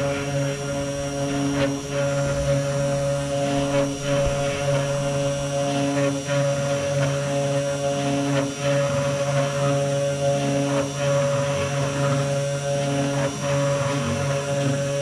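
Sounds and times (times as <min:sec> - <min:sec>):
spindle motor whining: 0:00.0 - 0:10.3.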